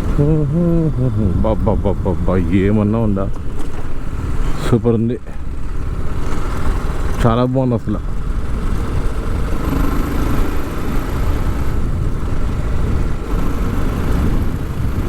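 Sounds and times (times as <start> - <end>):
wind rumble on microphone: 0.0 - 7.3, 8.0 - 15.0
motorcycle engine cruising: 0.0 - 15.0.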